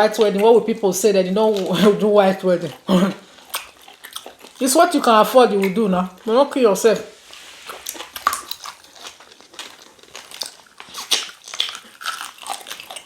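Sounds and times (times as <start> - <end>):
person chewing meat: 0.1 - 13.0
wet mouth smacks and clicks: 3.5 - 4.6, 7.7 - 9.3.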